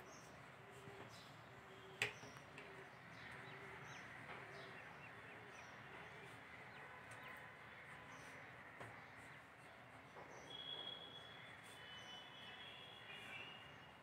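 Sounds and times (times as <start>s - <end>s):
faint bird chirps: 10.3s - 14.0s.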